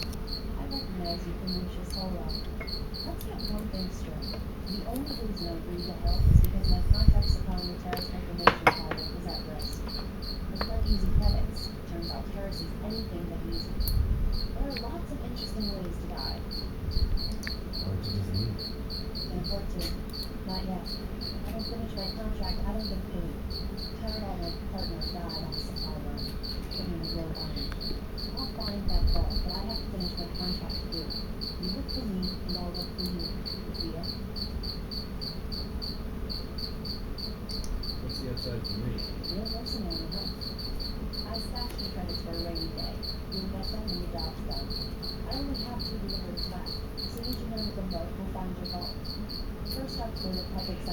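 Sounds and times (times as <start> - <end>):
cricket chirping: 0.0 - 50.9
dull thumps: 6.3 - 11.4.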